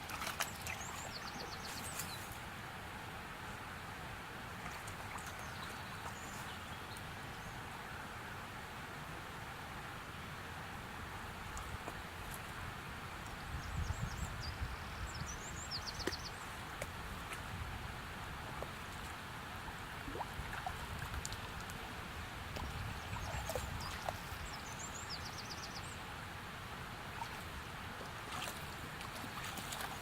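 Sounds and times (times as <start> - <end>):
songbird singing: 5.0 - 7.7, 13.2 - 16.6, 22.6 - 26.1.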